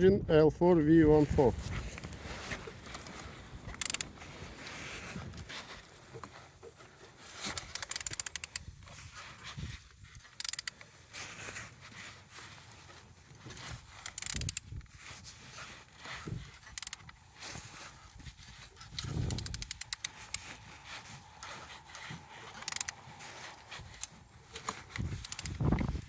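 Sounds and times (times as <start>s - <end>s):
ratchet wrench clicking: 3.7s - 4.1s, 7.5s - 8.6s, 10.3s - 10.8s, 14.0s - 14.7s, 16.6s - 17.1s, 18.9s - 20.4s, 22.6s - 23.0s, 25.0s - 26.0s.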